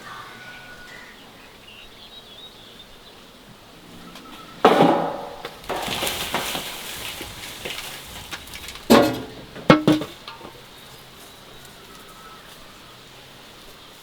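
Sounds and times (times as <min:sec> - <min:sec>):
dishes and utensils clattering: 0:04.6 - 0:10.6.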